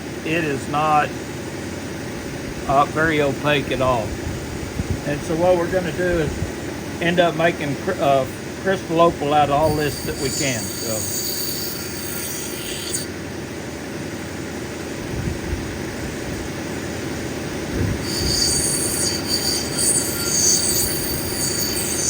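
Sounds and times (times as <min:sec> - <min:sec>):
grinding machine motor hum: 0:02.6 - 0:22.0
stone scraping squeal on wheel: 0:09.6 - 0:13.2, 0:18.0 - 0:22.0.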